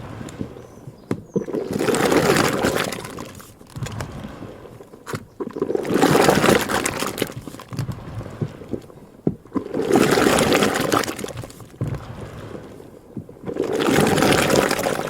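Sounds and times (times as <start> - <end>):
liquid sloshing in churn: 0.0 - 15.0.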